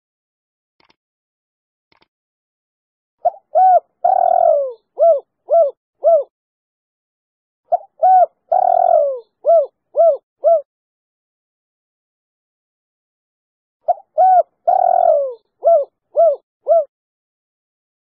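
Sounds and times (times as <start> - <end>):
dove cooing: 3.2 - 6.3, 7.7 - 10.7, 13.9 - 16.9.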